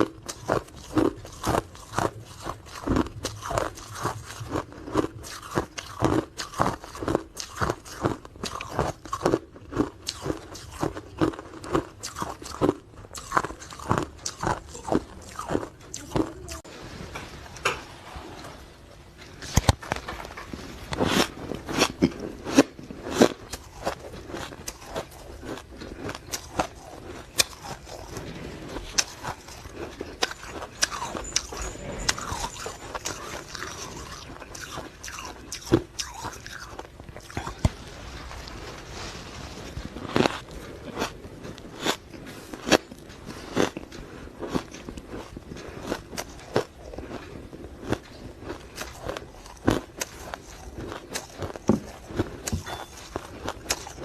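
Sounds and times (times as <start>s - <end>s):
ice crunching being chewed: 0.0s - 16.7s, 19.4s - 54.0s.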